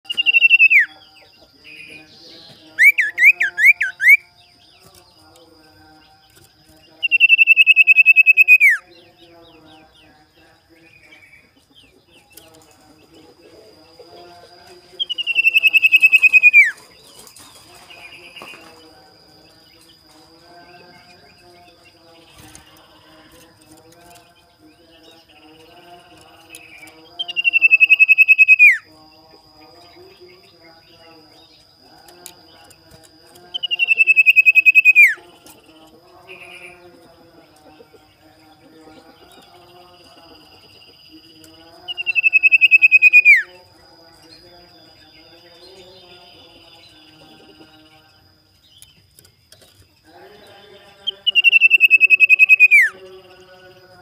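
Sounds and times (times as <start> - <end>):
bird calling trilled whistles: 0.1 - 0.9, 7.0 - 8.8, 15.0 - 16.8, 27.3 - 28.8, 33.6 - 35.2, 42.0 - 43.5, 51.3 - 52.9.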